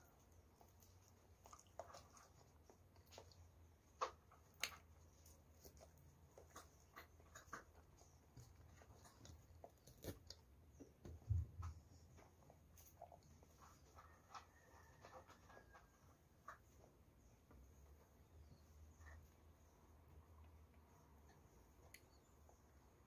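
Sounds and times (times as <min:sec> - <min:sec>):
person chewing with wet mouth clicks: 0:00.6 - 0:03.4.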